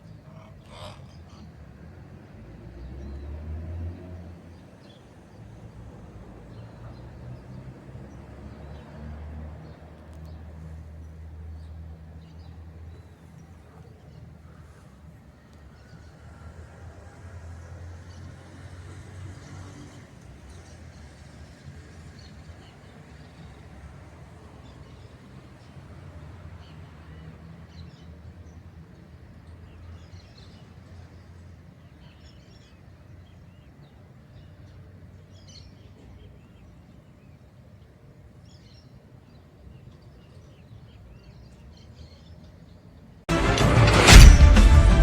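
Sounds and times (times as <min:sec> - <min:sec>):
loud music: 0:43.3 - 0:45.0.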